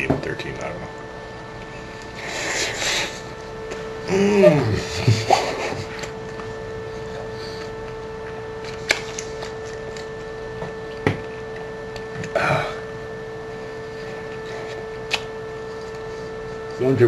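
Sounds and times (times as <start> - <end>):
electrical hum: 0.0 - 17.0
man chewing: 4.6 - 12.5.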